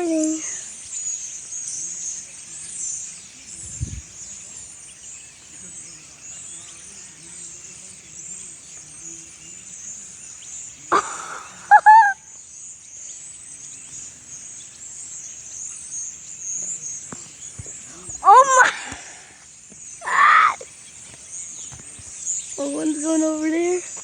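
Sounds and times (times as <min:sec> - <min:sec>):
flock of birds chattering: 0:00.0 - 0:24.0
loud high-pitched cries: 0:10.9 - 0:12.3, 0:18.1 - 0:19.2, 0:20.0 - 0:20.7.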